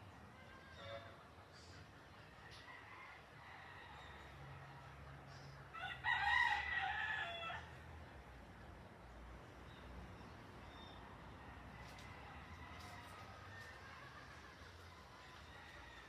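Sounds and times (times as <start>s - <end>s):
rooster crowing: 5.7s - 7.8s, 11.8s - 16.0s.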